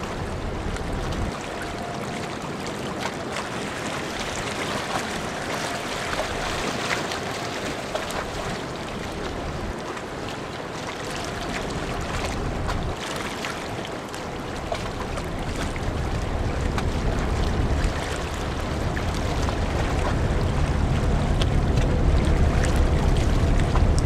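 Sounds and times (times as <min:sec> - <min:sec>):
wind gusts on microphone: 0:00.0 - 0:10.6, 0:11.3 - 0:24.0
wind and water noise: 0:00.0 - 0:24.0
faint steady hum: 0:14.8 - 0:24.0.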